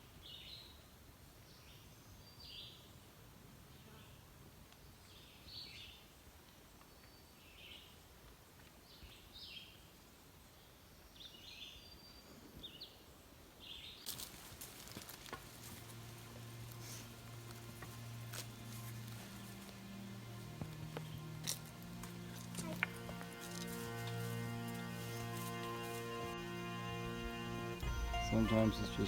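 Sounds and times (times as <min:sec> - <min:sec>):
songbird chirps: 0:00.0 - 0:29.0
background music with low notes: 0:15.5 - 0:29.0.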